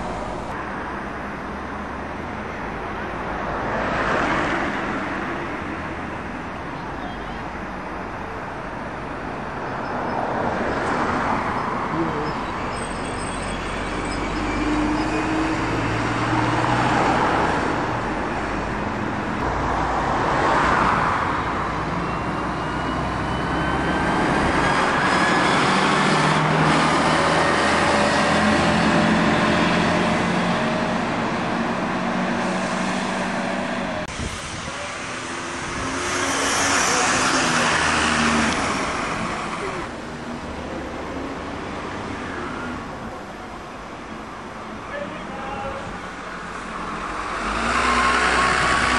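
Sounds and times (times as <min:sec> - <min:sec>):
vehicles passing: 0:00.0 - 0:48.9
vehicle accelerating: 0:13.7 - 0:42.2, 0:46.5 - 0:48.9.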